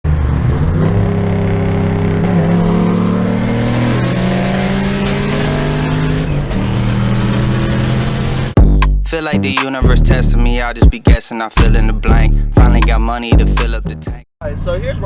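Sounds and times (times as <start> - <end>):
car engine at high revs: 0.1 - 8.6.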